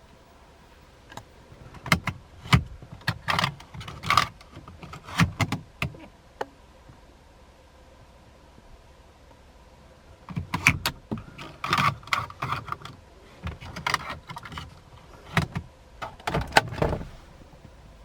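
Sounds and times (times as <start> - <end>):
car interior fittings clicking: 15.4 - 17.8.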